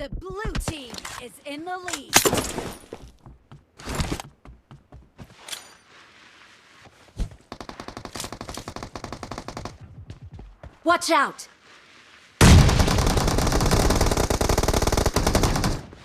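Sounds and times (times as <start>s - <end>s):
rapid automatic gunfire: 12.4s - 15.8s.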